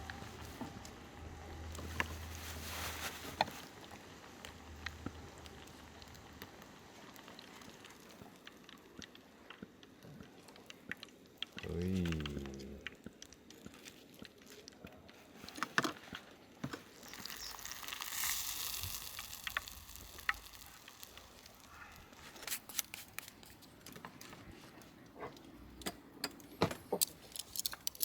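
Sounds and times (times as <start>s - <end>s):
soft hiss: 0.0s - 8.6s, 16.6s - 24.8s.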